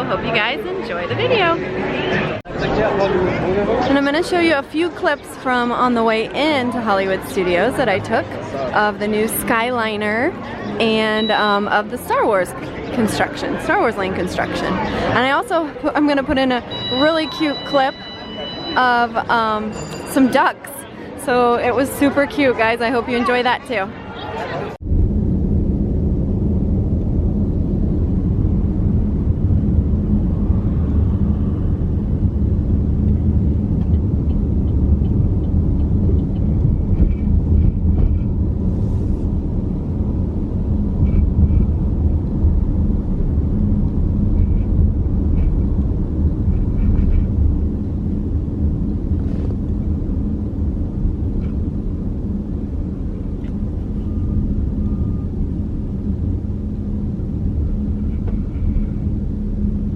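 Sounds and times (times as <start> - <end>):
car driving on road from inside: 24.8 - 59.4.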